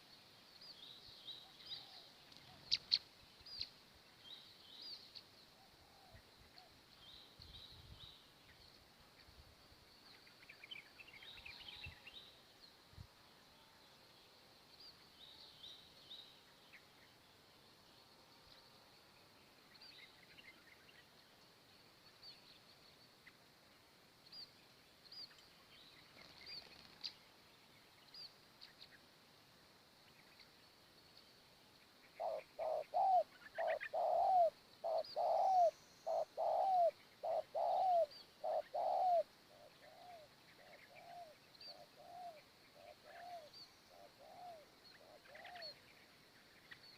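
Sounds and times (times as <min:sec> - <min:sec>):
small birds chirping: 0:00.0 - 0:46.9
dove cooing: 0:32.2 - 0:45.7.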